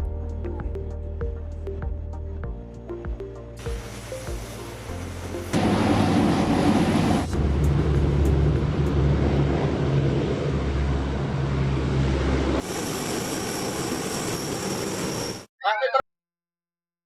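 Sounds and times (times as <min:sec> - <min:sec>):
broad rush of aircraft noise: 0:04.8 - 0:15.5
low aircraft engine drone: 0:04.8 - 0:15.5
high whine: 0:05.3 - 0:15.5.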